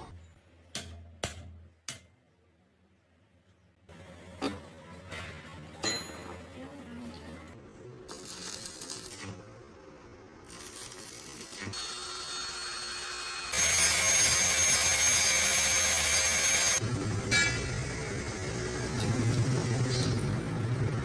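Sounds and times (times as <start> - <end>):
workshop noises: 0.0 - 21.0
power tool whining: 11.6 - 16.8.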